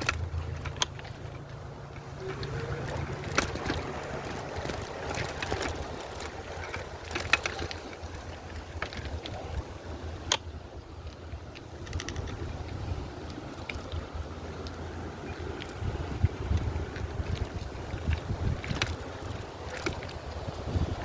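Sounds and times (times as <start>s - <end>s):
bike clicks and knocks: 0.0s - 21.0s
wind rumbling on microphone: 0.0s - 21.0s.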